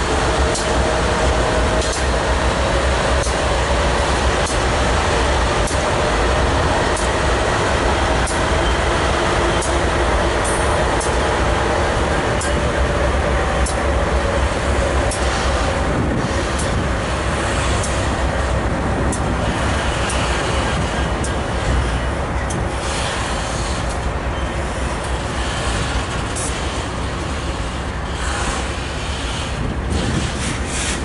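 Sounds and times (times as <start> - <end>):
freight train wheels rumbling on rail: 0.0 - 31.0
sharp clicks of rail joints: 0.2 - 2.3, 3.0 - 6.1, 6.7 - 7.3, 8.1 - 8.8, 9.4 - 11.4, 12.2 - 12.8, 13.5 - 13.9, 15.0 - 18.2, 19.1 - 24.1, 24.7 - 31.0.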